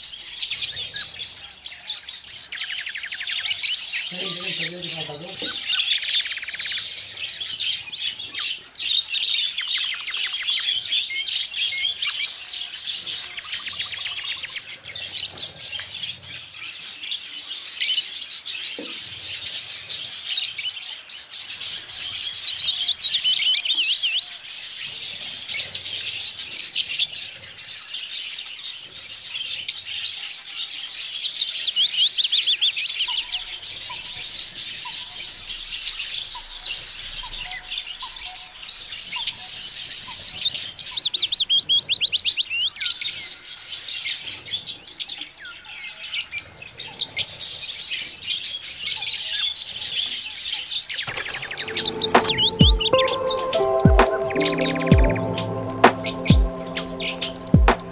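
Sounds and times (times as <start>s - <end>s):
budgerigars chattering: 2.7s - 7.1s.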